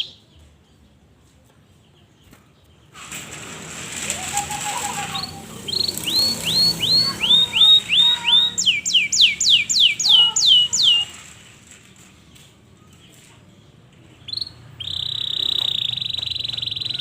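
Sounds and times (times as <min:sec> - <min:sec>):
canary singing: 0:00.0 - 0:00.9, 0:03.6 - 0:12.0, 0:12.8 - 0:17.0.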